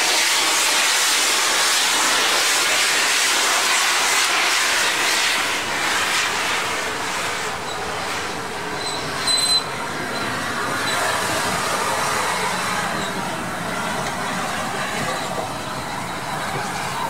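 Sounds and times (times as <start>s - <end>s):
steam train rumble and hiss: 0.0s - 17.0s.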